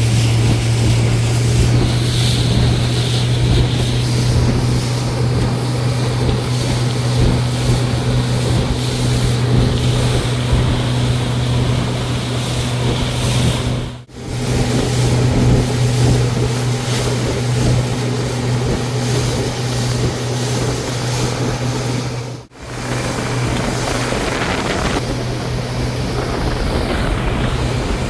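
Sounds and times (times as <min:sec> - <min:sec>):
motorboat engine running: 0:00.0 - 0:28.0
water rushing: 0:00.0 - 0:28.0
wind rushing: 0:19.4 - 0:28.0.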